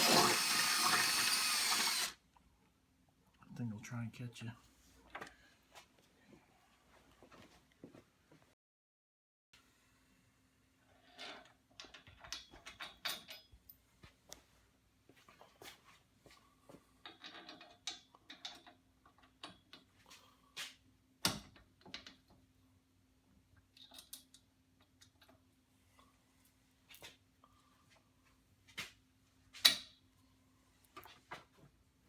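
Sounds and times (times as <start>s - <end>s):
bolts and tools clicking and rattling: 11.2s - 13.6s, 17.0s - 20.0s.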